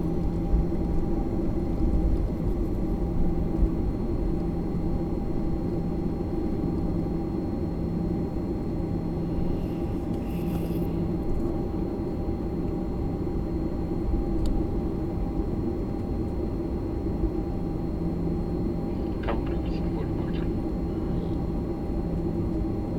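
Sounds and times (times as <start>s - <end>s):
airliner engines rumbling: 0.0s - 22.9s
steady hums: 17.3s - 22.9s.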